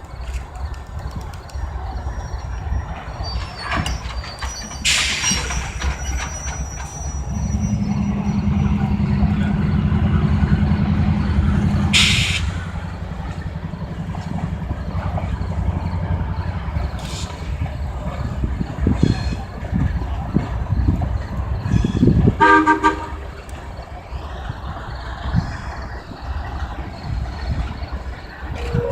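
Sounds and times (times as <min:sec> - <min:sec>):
diesel locomotive rumbling: 0:00.0 - 0:28.9
air brake hisses: 0:04.8 - 0:05.8, 0:11.9 - 0:12.7, 0:17.0 - 0:17.6.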